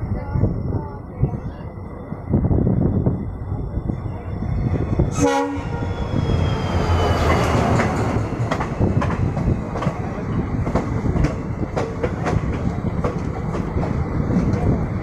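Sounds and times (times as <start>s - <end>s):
passing train rumble: 0.0s - 15.0s
train horn blast: 5.1s - 5.9s
train wheels clicking over rail joints: 7.2s - 14.8s.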